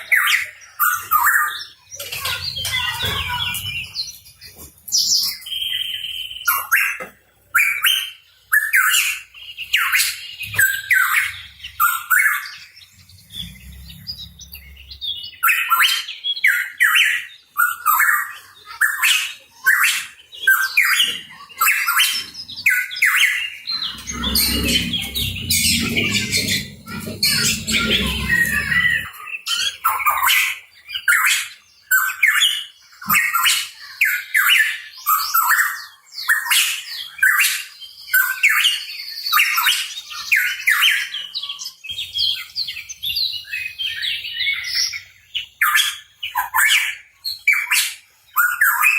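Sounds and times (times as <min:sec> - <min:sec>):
bird harsh chirps and squawks: 0:00.0 - 0:48.9
low rumble: 0:23.8 - 0:29.1.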